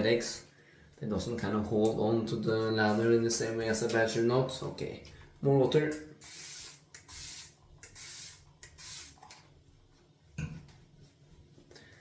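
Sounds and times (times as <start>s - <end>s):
spray bottle spritzing: 6.2s - 9.4s.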